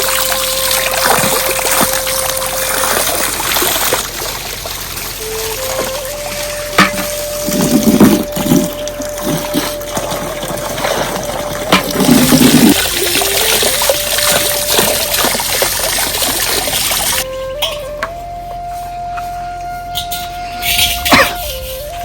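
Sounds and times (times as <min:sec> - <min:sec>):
soft background music: 0:00.0 - 0:03.7, 0:05.2 - 0:16.1, 0:17.2 - 0:22.0
heavy rain falling: 0:00.0 - 0:17.3
water running and splashing: 0:00.0 - 0:18.1
low splashes: 0:00.0 - 0:18.4.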